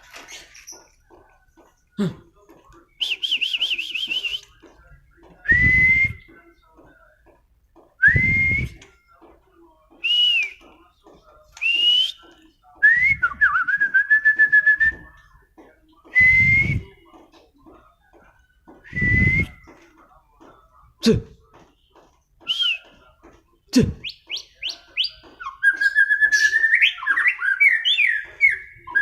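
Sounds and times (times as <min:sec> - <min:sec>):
bird whistling and trilling: 0:24.0 - 0:29.0.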